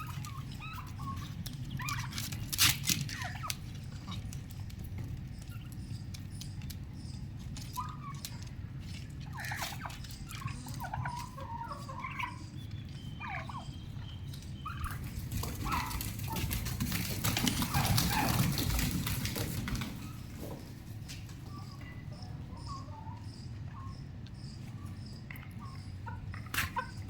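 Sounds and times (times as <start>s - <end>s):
young turkeys calling: 0.0s - 27.0s.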